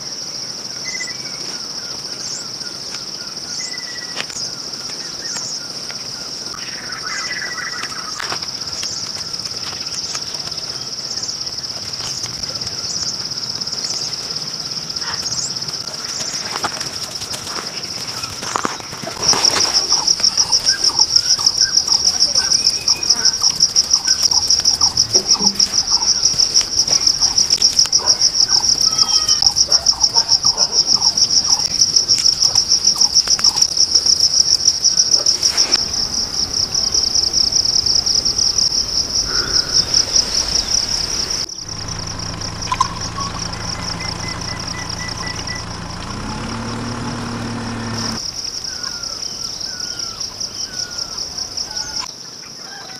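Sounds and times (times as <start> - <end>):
crickets chirring: 0.0 - 52.9
faint bird chirps: 28.5 - 31.7, 39.2 - 45.8.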